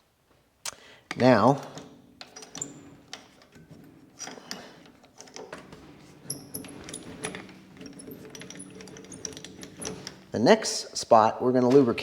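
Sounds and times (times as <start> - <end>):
lathe mechanism clicking: 1.7 - 10.4.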